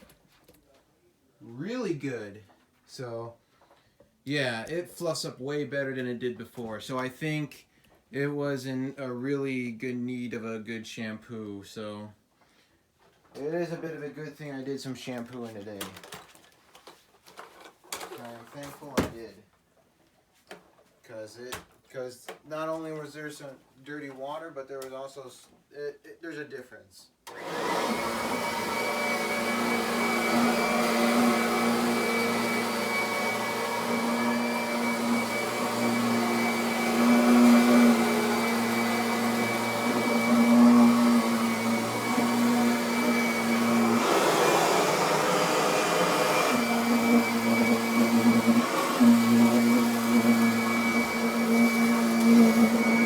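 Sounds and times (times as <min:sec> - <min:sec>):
vacuum cleaner running: 0:27.3 - 0:53.0.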